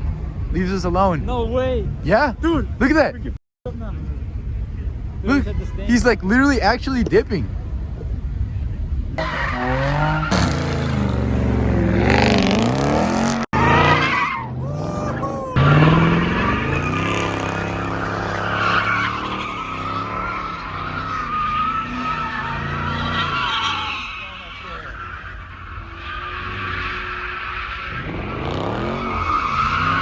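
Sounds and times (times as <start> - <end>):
car engine revving: 6.9 - 24.9, 25.5 - 30.0
tires squealing: 9.1 - 30.0.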